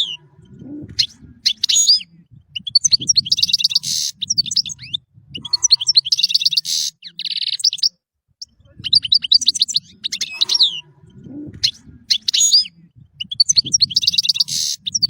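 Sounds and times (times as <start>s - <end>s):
faint low rumble: 0.0s - 6.2s, 8.4s - 14.1s
finch twittering song: 0.0s - 10.9s, 11.6s - 15.0s.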